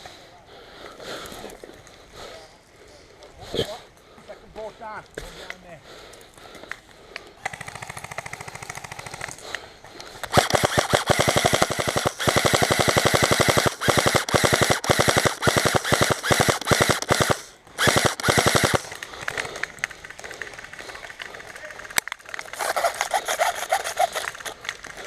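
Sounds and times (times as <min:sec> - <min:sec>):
airsoft gun rapid fire: 0:07.4 - 0:09.5, 0:10.2 - 0:21.2, 0:22.5 - 0:25.0.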